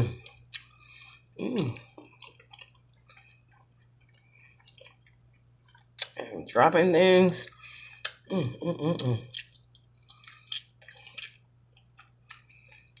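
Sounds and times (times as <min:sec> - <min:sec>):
person chewing meat: 0:00.0 - 0:06.6, 0:07.4 - 0:13.0
person humming: 0:01.4 - 0:01.9, 0:08.3 - 0:09.3.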